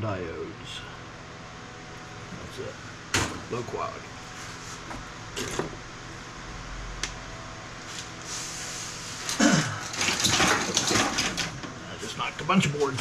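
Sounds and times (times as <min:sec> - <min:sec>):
pile of circuit boards clattering: 0:09.8 - 0:11.7.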